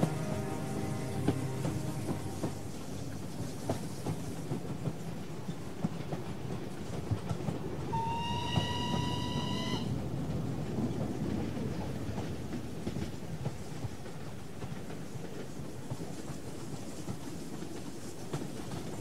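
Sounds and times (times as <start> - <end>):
train whistle blowing: 0.0 - 3.2, 7.9 - 10.0
train running on track: 0.0 - 19.0.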